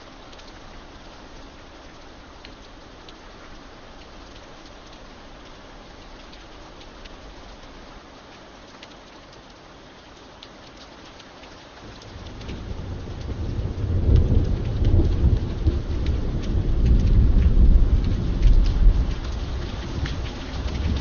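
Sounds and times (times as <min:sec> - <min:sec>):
raindrops tapping: 0:00.0 - 0:21.0
steady rain: 0:00.0 - 0:21.0
thunder rumbling: 0:11.8 - 0:21.0.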